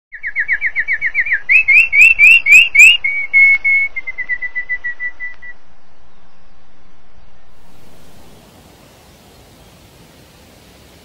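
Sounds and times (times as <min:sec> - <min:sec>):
whistled bird song: 0:00.1 - 0:06.6.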